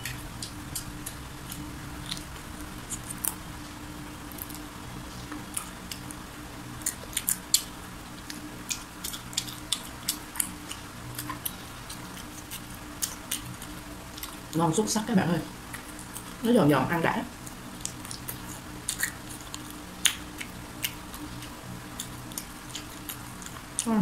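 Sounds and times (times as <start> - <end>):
crunching fried chicken: 0.0 - 3.5, 4.2 - 14.6, 17.3 - 24.0
faint low hum: 0.0 - 24.0.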